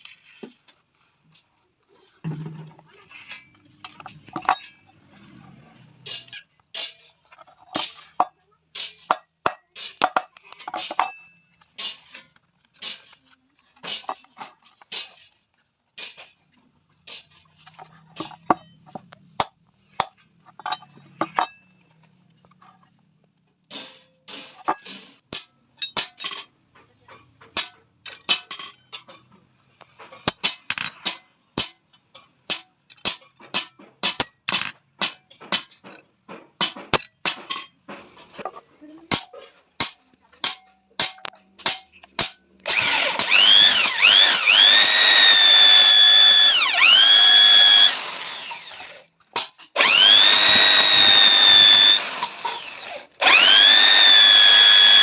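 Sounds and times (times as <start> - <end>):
metal taps and clinks: 9.1 - 11.4, 18.2 - 21.7, 24.7 - 37.8
power drill whining: 42.7 - 49.1, 49.8 - 55.0.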